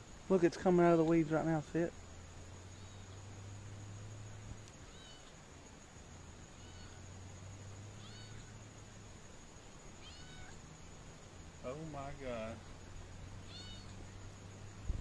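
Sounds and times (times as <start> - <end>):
low steady hum: 0.0 - 15.0
kitten meowing faintly: 4.8 - 5.4, 6.5 - 7.1, 7.9 - 8.6, 9.9 - 10.7, 13.4 - 14.0.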